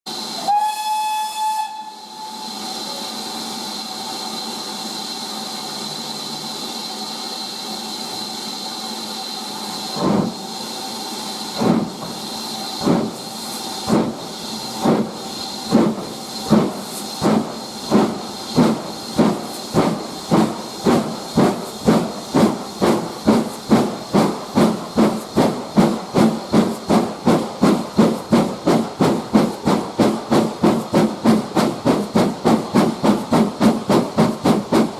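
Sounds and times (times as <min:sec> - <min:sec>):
steam locomotive whistle: 0:00.1 - 0:03.2
steam hissing: 0:00.1 - 0:34.9
locomotive exhaust beats: 0:09.8 - 0:34.9.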